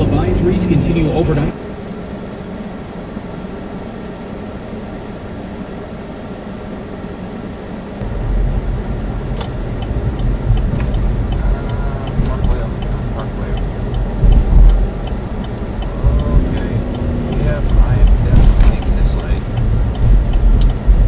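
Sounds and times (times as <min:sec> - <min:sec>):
car engine and road rumble: 0:00.0 - 0:21.0
sharp clicks: 0:09.0 - 0:21.0.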